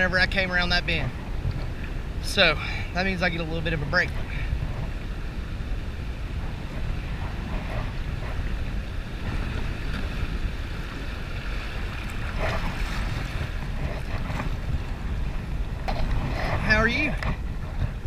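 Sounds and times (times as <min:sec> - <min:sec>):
river water moving: 0:00.0 - 0:18.0
wind buffeting microphone: 0:00.0 - 0:18.0
faint water splashes: 0:00.8 - 0:17.9.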